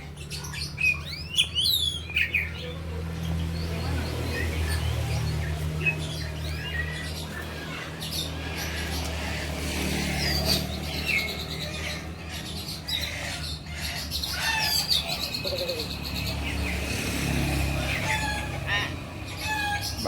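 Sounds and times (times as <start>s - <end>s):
songbirds chirping and whistling: 0.0s - 20.0s.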